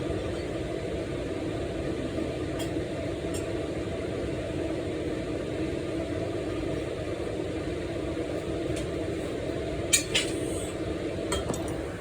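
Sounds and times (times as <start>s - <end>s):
appliance motor hum: 10.9s - 12.0s.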